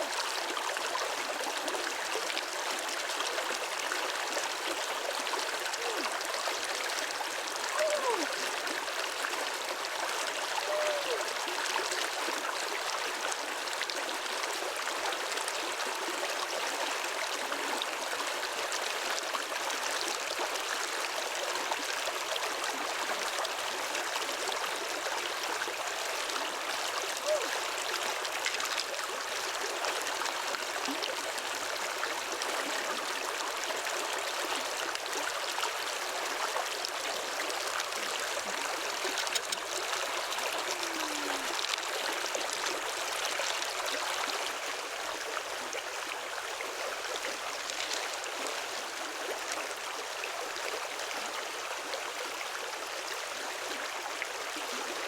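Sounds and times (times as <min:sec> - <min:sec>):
flowing water rushing: 0:00.0 - 0:55.0
water gurgles: 0:00.0 - 0:55.0.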